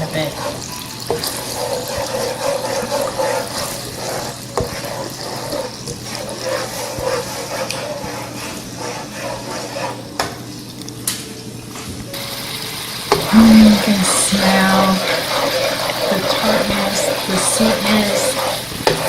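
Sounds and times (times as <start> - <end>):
sauce bubbling and sizzling in a wok: 0.0 - 11.2, 12.0 - 19.0.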